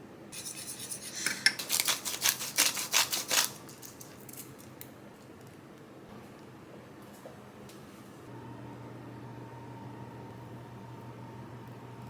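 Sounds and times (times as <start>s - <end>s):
utensils clinking against container: 0.4s - 4.7s.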